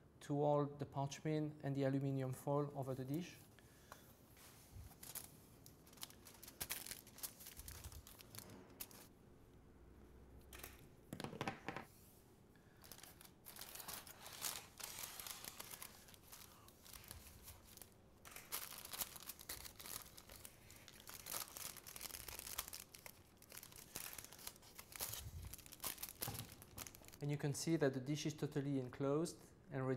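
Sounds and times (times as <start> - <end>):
foil and paper crinkling: 4.6 - 9.1, 12.8 - 27.2.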